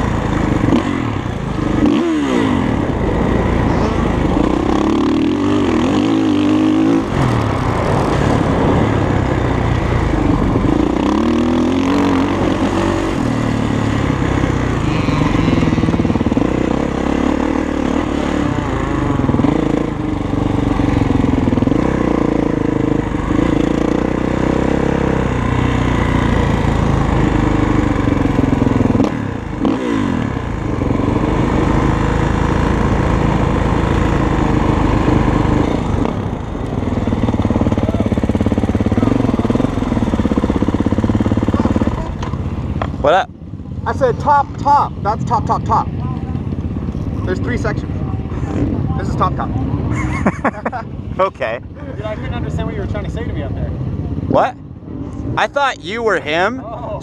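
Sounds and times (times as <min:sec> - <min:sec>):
dirt bike engine revving: 0:00.0 - 0:42.8.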